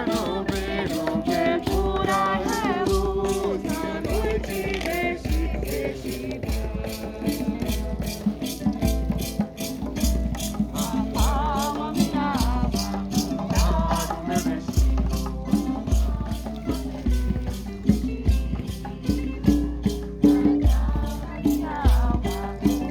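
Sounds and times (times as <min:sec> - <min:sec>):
singing: 0:00.0 - 0:08.5, 0:10.7 - 0:17.2, 0:20.2 - 0:22.9
maracas shaken: 0:00.0 - 0:22.9.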